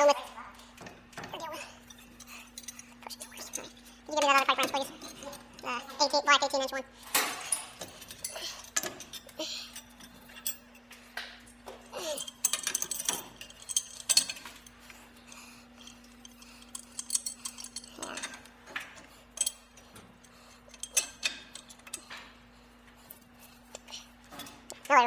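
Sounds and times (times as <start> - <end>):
steady low hum: 0.0 - 25.0
metal hand tools clinking: 7.1 - 10.9, 11.5 - 22.4.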